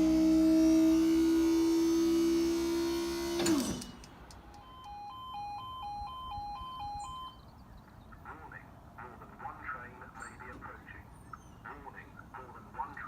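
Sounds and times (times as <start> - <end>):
level crossing warning alarm: 4.4 - 7.5.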